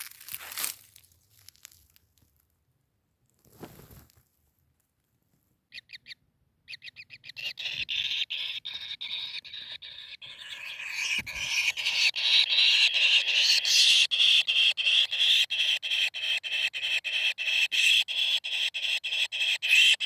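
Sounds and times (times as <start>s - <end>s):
brief rustling: 3.4s - 4.3s
kingfisher calling: 6.7s - 20.0s.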